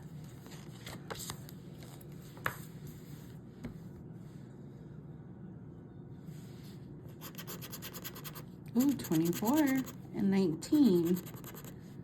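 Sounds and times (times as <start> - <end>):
faint steady hum: 0.0 - 12.0
paper ticket rubbing and ticks: 7.3 - 10.0.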